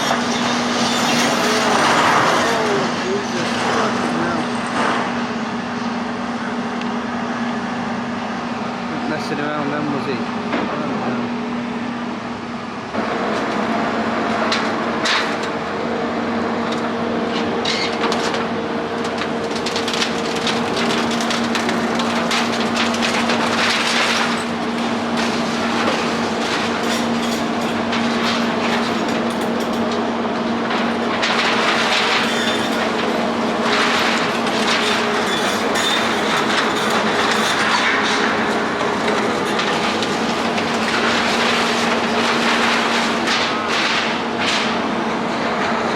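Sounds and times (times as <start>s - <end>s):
concrete rubble clattering: 0.0s - 5.4s, 17.4s - 45.0s
excavator engine humming: 0.0s - 45.9s.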